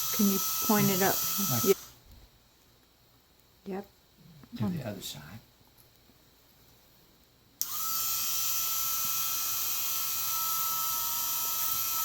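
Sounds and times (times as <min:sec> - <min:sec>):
rotary tool wire brush whining: 0:00.0 - 0:02.0, 0:07.6 - 0:12.0.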